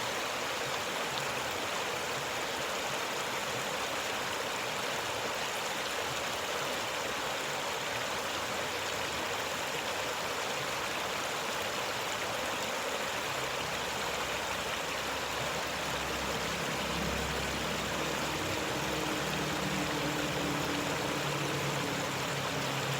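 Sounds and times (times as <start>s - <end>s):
river flowing: 0.0s - 22.9s
faint low hum: 14.5s - 22.9s.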